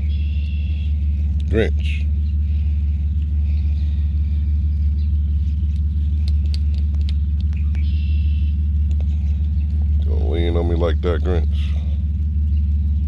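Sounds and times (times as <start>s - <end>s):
engine humming: 0.0s - 13.0s
faint clicks: 3.1s - 10.1s.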